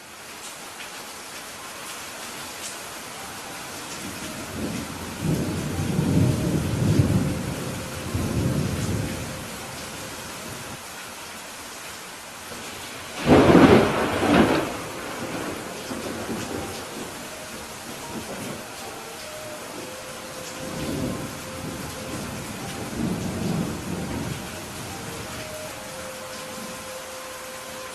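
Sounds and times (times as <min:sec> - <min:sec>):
steady rain: 0:00.0 - 0:27.9
thunder rumbling: 0:04.3 - 0:10.7, 0:13.1 - 0:26.8.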